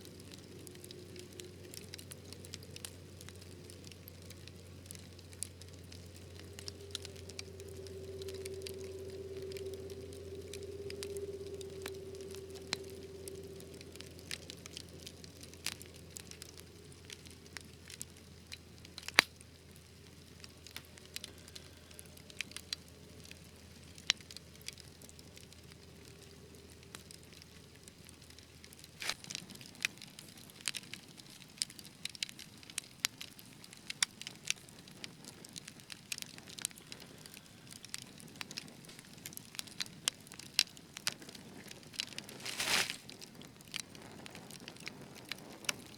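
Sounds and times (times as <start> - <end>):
low hum: 0.0 - 29.2
wood fire crackling: 0.0 - 45.9
sharp fire pops: 0.2 - 45.9.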